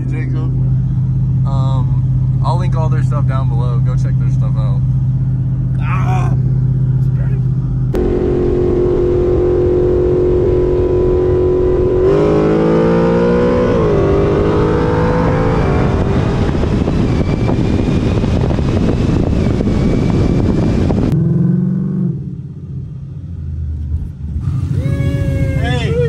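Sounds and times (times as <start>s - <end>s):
car engines at full throttle: 0.0s - 26.0s
wind noise at speed: 7.9s - 21.3s.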